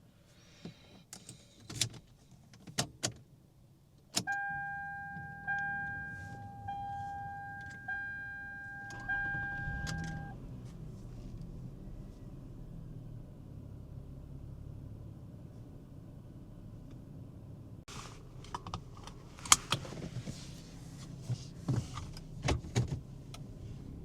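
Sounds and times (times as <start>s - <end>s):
dashboard warning chime: 4.3s - 10.4s
car engine running: 4.6s - 15.1s.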